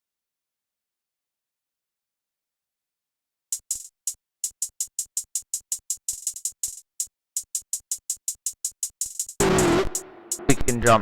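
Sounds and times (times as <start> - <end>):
programmed hi-hat ticks: 3.5 - 11.0.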